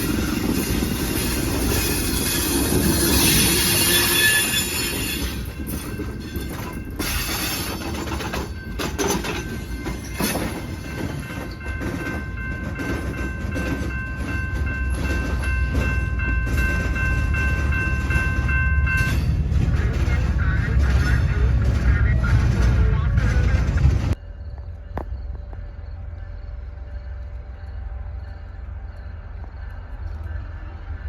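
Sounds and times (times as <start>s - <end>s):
wheels clicking over rail joints: 0.0s - 24.2s
train rumbling past: 0.0s - 31.0s.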